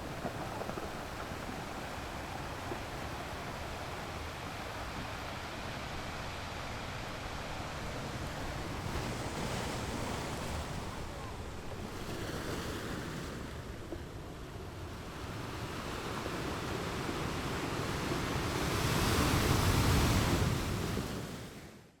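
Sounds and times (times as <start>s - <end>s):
waves breaking against rocks: 0.0s - 5.0s.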